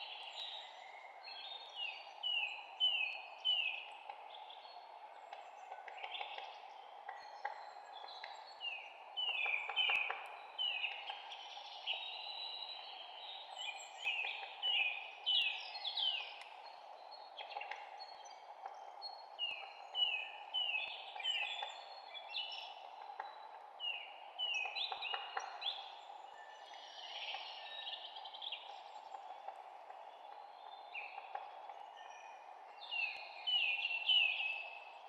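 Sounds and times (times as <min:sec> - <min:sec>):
forest ambience: 0:00.0 - 0:35.0
songbirds chirping: 0:00.0 - 0:35.0.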